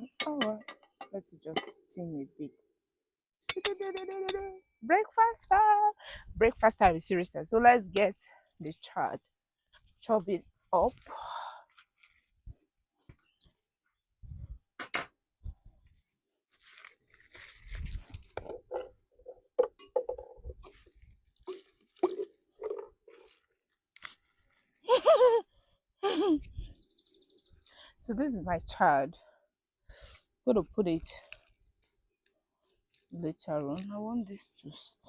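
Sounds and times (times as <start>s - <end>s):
bird chirping: 23.4s - 28.4s.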